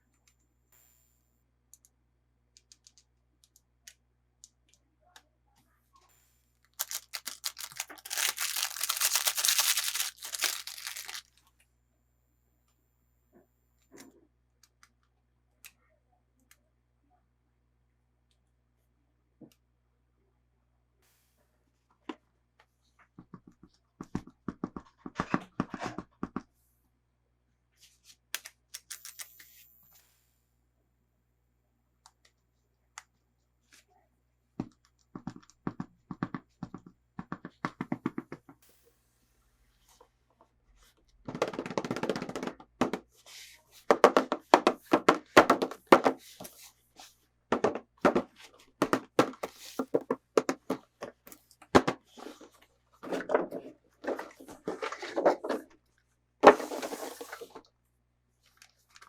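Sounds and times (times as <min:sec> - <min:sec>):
packaging rustling: 0:06.8 - 0:11.3.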